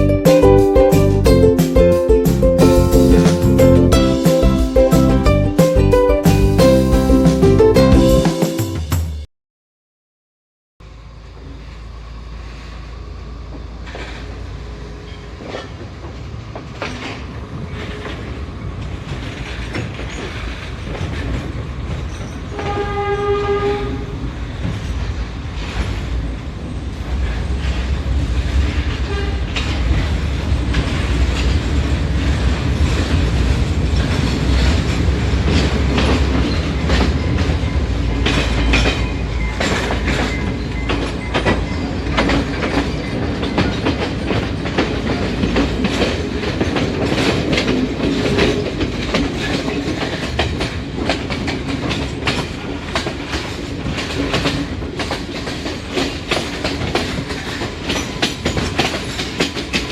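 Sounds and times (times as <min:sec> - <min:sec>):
diesel train rumble: 0:00.0 - 0:09.1, 0:10.8 - 0:59.9
wheels clicking over rail joints: 0:15.0 - 0:23.1, 0:27.2 - 0:59.9
train horn blast: 0:22.5 - 0:24.1, 0:29.0 - 0:29.6.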